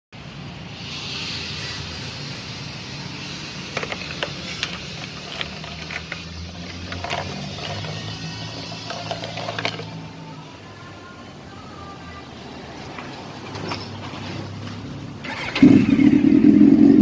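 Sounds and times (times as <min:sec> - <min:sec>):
motorcycle engine idling: 0:15.2 - 0:17.0.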